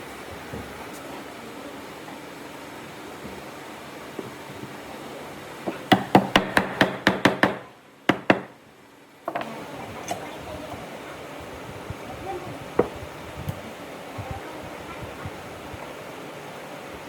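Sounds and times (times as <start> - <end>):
hammer striking wood: 5.7 - 8.6.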